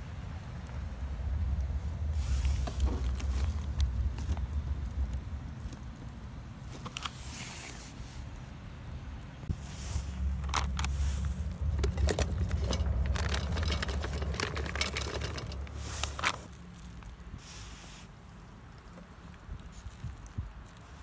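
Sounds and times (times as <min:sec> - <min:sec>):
steady low rumble: 0:00.0 - 0:06.7, 0:08.6 - 0:17.4
gear clicking and scraping: 0:10.2 - 0:17.1.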